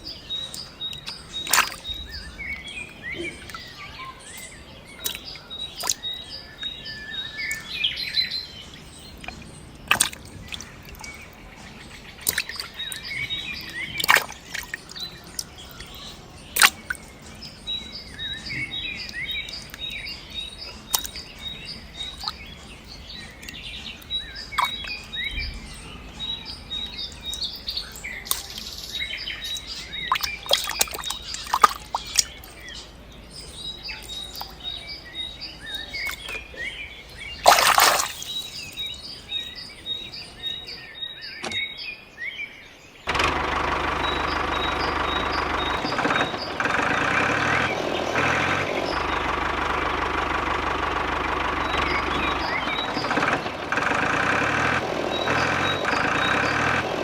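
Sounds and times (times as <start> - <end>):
birds chirping: 0.0 - 57.0
sharp clicks or small splashes: 0.5 - 2.1, 5.0 - 6.7, 9.2 - 11.4, 12.2 - 17.4, 19.1 - 22.6, 23.4 - 25.2, 27.2 - 32.8, 34.0 - 34.7, 35.9 - 36.6, 37.4 - 38.9, 43.1 - 57.0.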